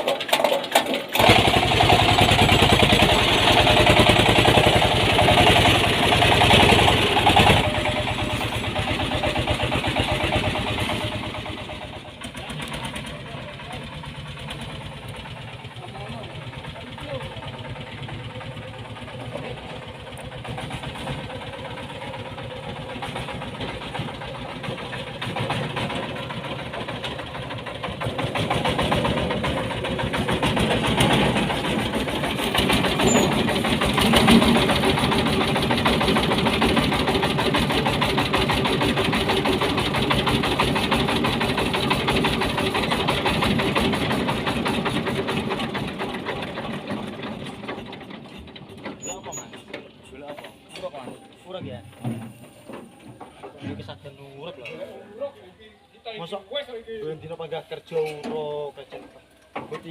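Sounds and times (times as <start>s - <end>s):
diesel engine chugging: 0.0s - 59.9s.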